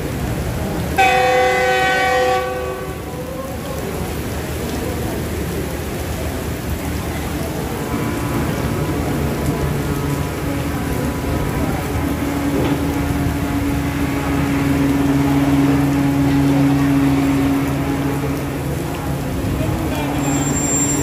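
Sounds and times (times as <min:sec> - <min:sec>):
rain falling: 0:00.0 - 0:21.0
diesel locomotive engine hum: 0:05.8 - 0:21.0.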